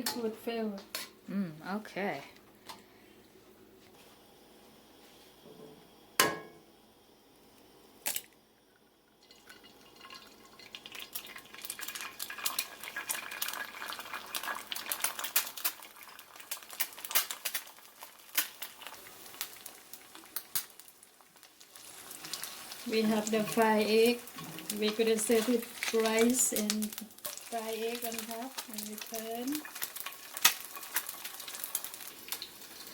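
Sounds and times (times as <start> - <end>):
dense crackling in a pan: 9.2 - 32.9.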